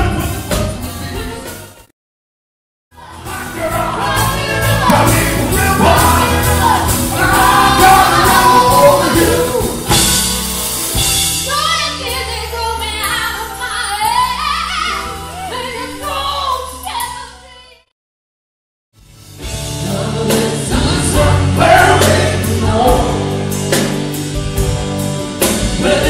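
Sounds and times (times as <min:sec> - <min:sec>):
rock band playing live: 0:00.0 - 0:01.9, 0:03.0 - 0:17.1, 0:19.0 - 0:26.0
drums hitting hard: 0:03.0 - 0:12.4, 0:19.4 - 0:26.0.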